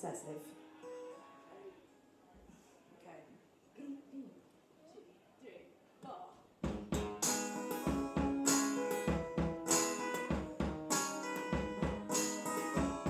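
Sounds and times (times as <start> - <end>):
drums: 6.6 - 13.0
sustained guitar chords: 6.7 - 13.0.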